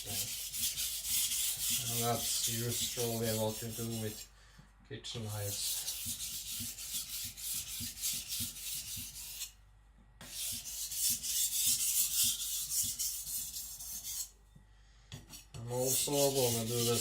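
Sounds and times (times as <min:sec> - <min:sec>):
knife scraping on sharpening stone: 0:10.4 - 0:14.3.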